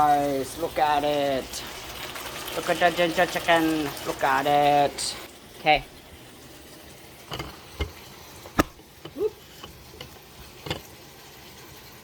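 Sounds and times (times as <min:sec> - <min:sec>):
kitchen clatter knocks and clicks: 0:07.3 - 0:10.9.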